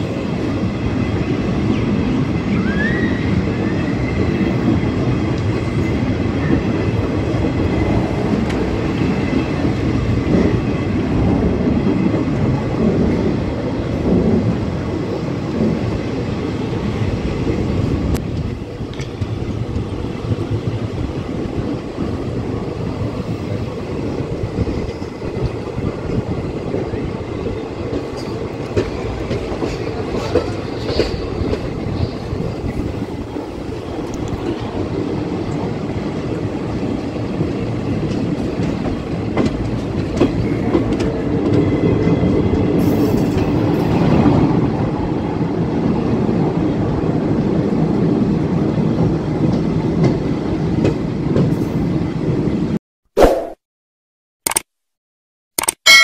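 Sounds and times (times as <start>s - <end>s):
train wheels rumbling on rails: 0.0s - 52.8s
clickety-clack over rail joints: 4.2s - 14.6s, 17.4s - 22.2s, 24.4s - 45.0s, 46.0s - 52.6s.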